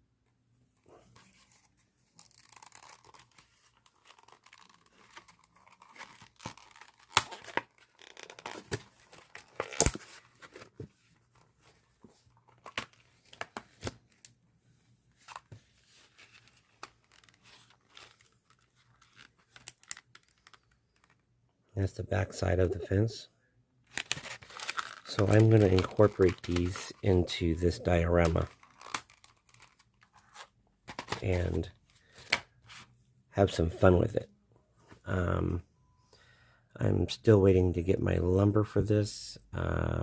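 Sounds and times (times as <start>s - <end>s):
packaging rustling and tearing: 1.2s - 10.9s, 16.0s - 21.1s, 23.9s - 32.3s.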